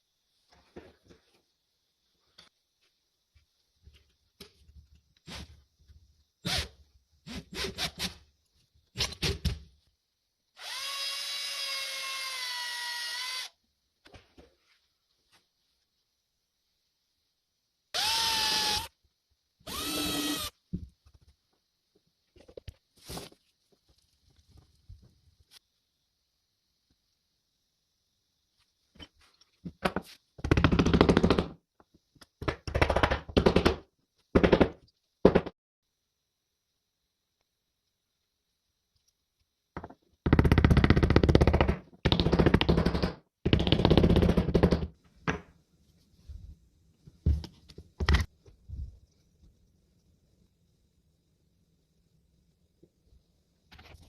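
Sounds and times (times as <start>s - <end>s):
electric drill whining: 10.6s - 13.5s, 18.0s - 18.9s, 19.7s - 20.5s.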